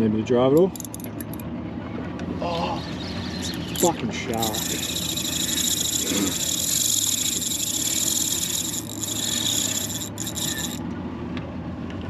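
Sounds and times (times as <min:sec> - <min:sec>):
low boat engine hum: 0:00.0 - 0:12.0
fishing reel drag buzzing: 0:03.6 - 0:10.8.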